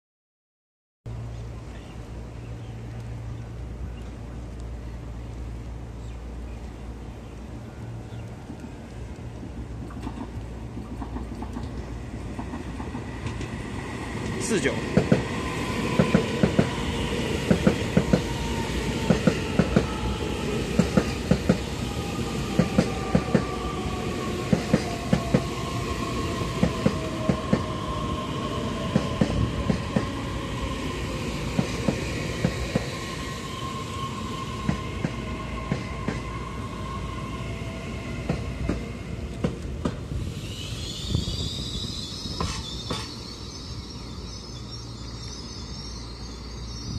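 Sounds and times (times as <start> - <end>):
train whine: 1.1 - 46.9
wheels clacking over rail joints: 9.5 - 13.6
high brake squeal: 40.2 - 46.9.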